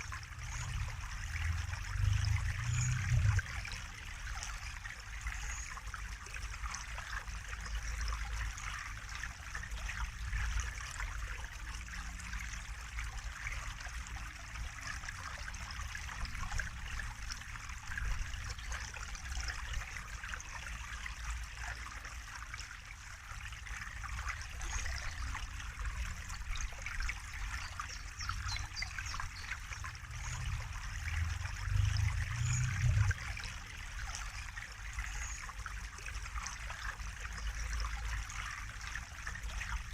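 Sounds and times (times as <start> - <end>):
water trickling and splashing: 0.0 - 39.9
low rumble: 29.9 - 33.3.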